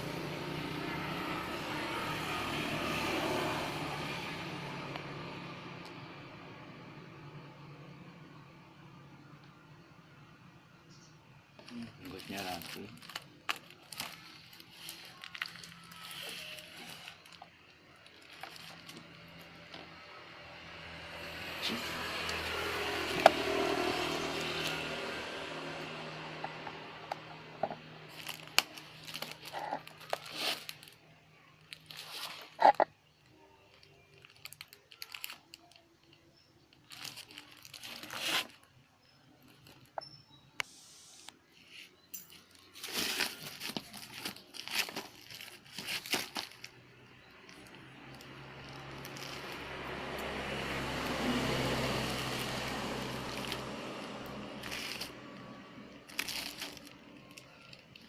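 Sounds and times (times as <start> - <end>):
plastic packaging crinkling: 11.6 - 20.1, 21.3 - 40.0, 42.2 - 58.0.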